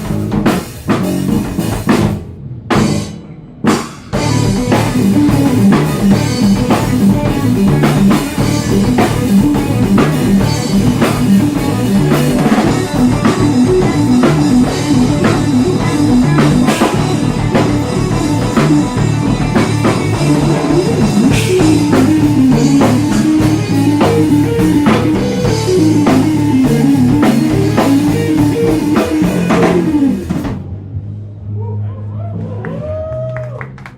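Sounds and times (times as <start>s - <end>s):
drum kit: 0.0s - 30.7s
electric guitar melody: 4.1s - 30.6s.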